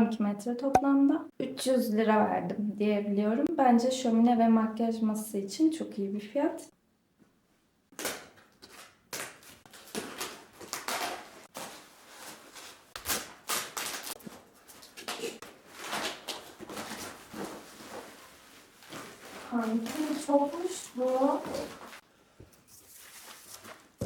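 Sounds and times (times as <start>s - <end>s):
plastic strips scraping and knocking: 8.0s - 22.0s
packaging rustling: 8.7s - 22.0s.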